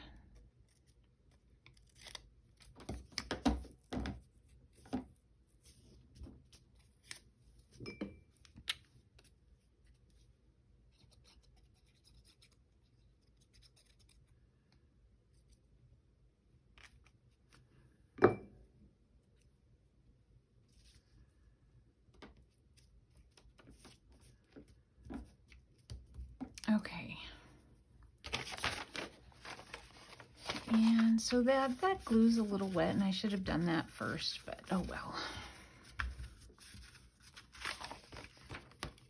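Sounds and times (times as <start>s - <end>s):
paper rustling: 28.2s - 39.0s.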